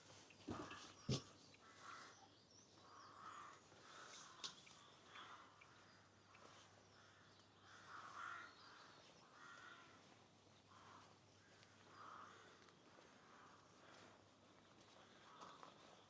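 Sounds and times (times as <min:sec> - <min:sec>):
crows cawing: 0:08.1 - 0:08.5, 0:09.4 - 0:09.9, 0:12.0 - 0:12.6.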